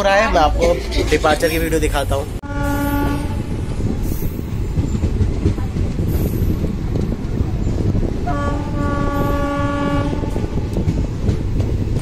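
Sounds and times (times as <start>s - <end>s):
train rumble: 0.0s - 12.0s
train horn: 2.4s - 3.5s, 8.2s - 10.6s.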